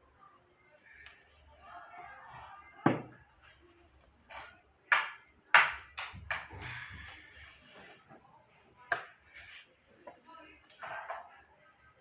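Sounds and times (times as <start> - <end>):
hard objects knocking and clicking: 4.3 - 7.2.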